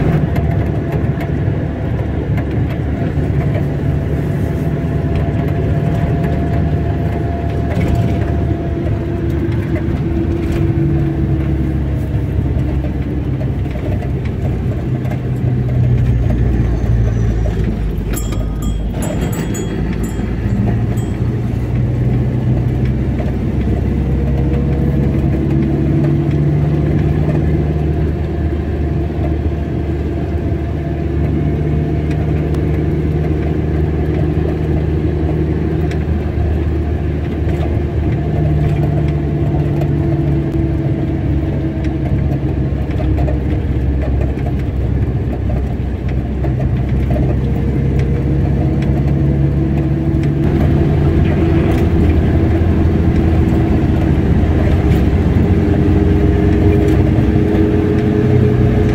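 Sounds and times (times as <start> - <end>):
car engine and road noise: 0.0 - 58.9.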